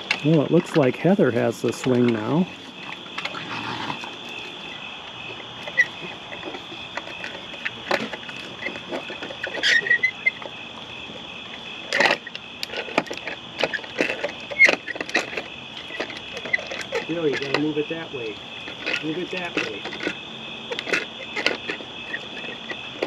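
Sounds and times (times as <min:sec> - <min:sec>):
plastic toys clicking and rattling: 0:00.0 - 0:03.4, 0:11.8 - 0:23.0
night insects trilling: 0:00.0 - 0:23.0
short squeak: 0:09.4 - 0:10.4.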